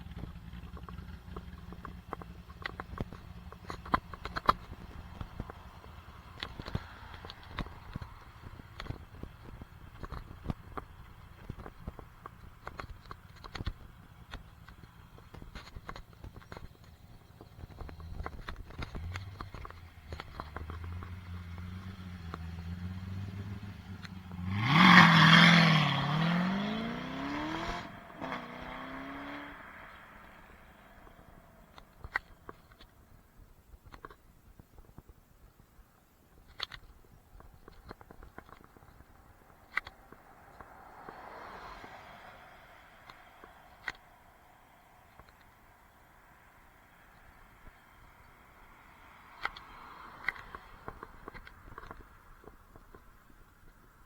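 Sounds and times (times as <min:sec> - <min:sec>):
small clicks and scrapes: 0:00.2 - 0:42.1, 0:43.0 - 0:44.2, 0:45.1 - 0:45.6, 0:47.1 - 0:54.0
car engine exhaust revving: 0:00.4 - 0:31.8.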